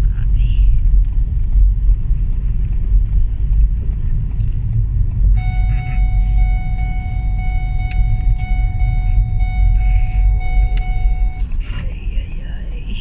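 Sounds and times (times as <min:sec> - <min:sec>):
car driving in snow rumble: 0:00.0 - 0:13.0
steady high tone: 0:05.4 - 0:11.5.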